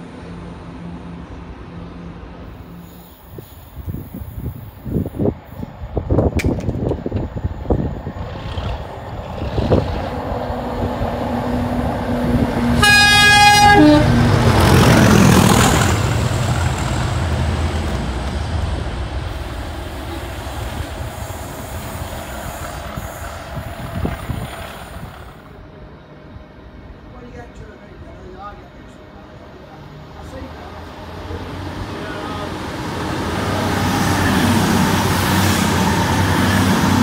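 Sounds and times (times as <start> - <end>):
train rushing past: 0.0 - 37.0
train horn: 12.8 - 14.2.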